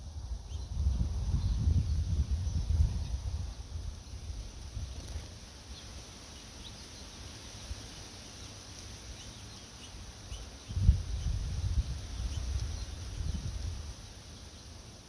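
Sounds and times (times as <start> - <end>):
wind buffeting microphone: 0.0 - 5.2, 10.6 - 14.0.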